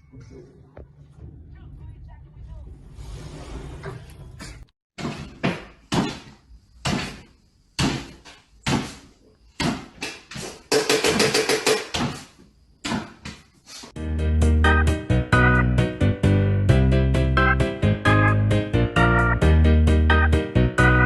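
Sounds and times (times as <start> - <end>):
irregular knocks and bangs: 5.0 - 13.5
music: 14.0 - 21.0.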